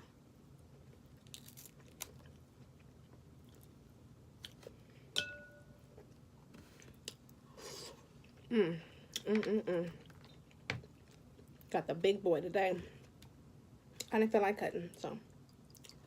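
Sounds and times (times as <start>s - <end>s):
person chewing: 4.4s - 4.7s, 15.5s - 16.0s.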